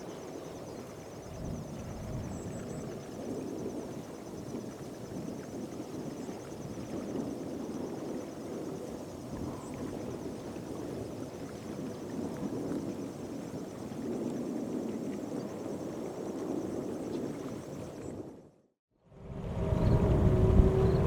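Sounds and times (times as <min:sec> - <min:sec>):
distant jet rumble: 0:19.1 - 0:21.0.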